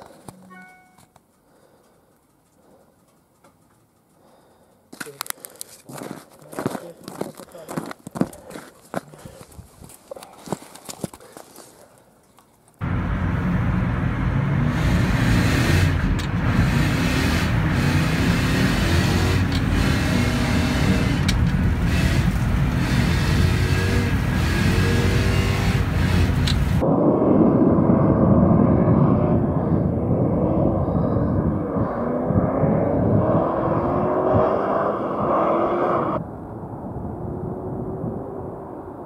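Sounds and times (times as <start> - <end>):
car engine revving: 12.8 - 26.8, 31.5 - 36.2.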